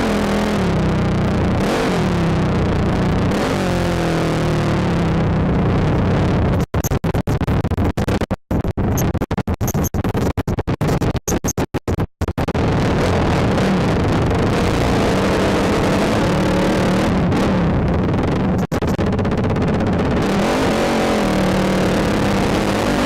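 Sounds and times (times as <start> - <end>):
atv engine running: 0.0 - 6.7, 12.3 - 23.0.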